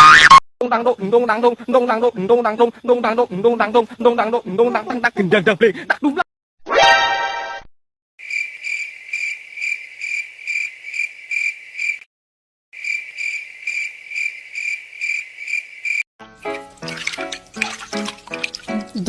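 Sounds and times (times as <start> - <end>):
cricket chirping: 8.2 - 12.0, 12.8 - 16.0.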